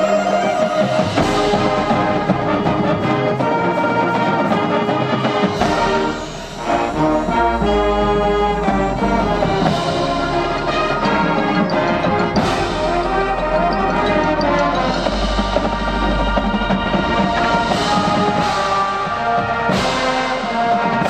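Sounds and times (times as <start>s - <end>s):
brass chords: 0.0s - 21.0s
cymbal crash: 5.5s - 13.6s
bass drums: 5.5s - 21.0s.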